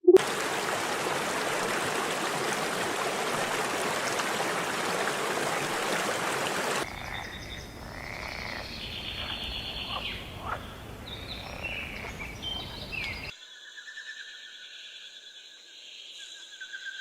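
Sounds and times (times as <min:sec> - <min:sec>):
animal croaks chirps and trills: 0:06.8 - 0:10.7.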